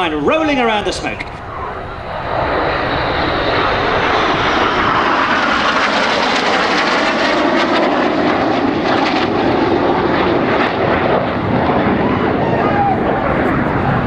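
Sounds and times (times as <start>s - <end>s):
jets flying past: 0.0s - 14.0s.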